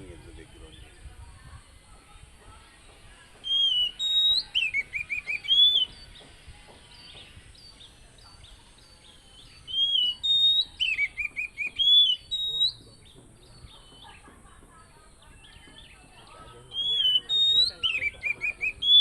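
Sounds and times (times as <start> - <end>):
faint bird chirps: 0.3 - 19.0
bird singing whistled phrases: 3.4 - 6.2, 6.8 - 14.2, 15.4 - 19.0.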